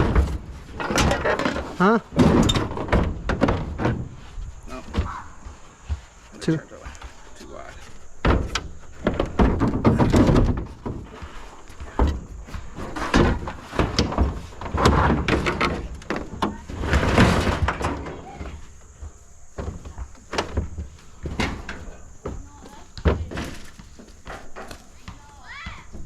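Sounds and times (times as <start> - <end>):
scrap metal thuds and clanks: 0.0 - 6.0, 6.8 - 26.0.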